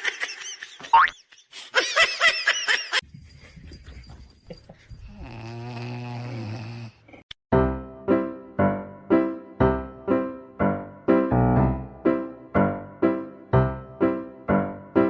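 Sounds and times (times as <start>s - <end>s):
cartoon boing sound effects: 0.9s - 1.1s
pet snoring: 5.1s - 7.3s
piano music: 7.5s - 15.0s.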